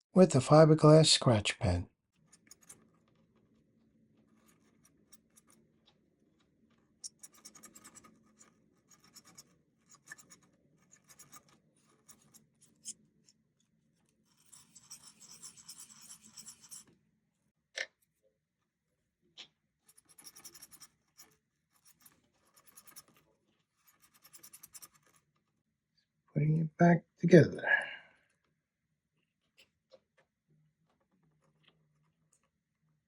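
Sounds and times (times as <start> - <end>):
pen scratching metal wheels: 2.1 - 13.4, 14.0 - 16.9, 19.8 - 25.4.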